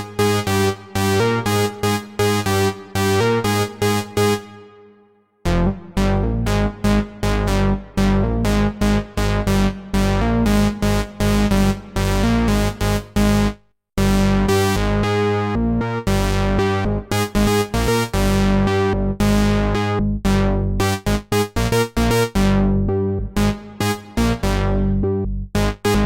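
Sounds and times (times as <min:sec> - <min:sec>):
synthesizer notes over low bass: 0:05.5 - 0:26.0.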